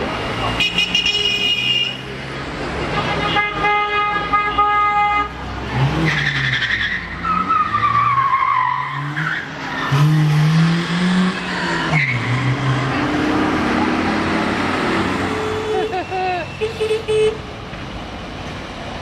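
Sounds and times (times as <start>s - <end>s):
vehicle noise: 0.0s - 19.0s
car horn: 0.5s - 2.1s, 2.9s - 5.4s, 15.0s - 17.4s.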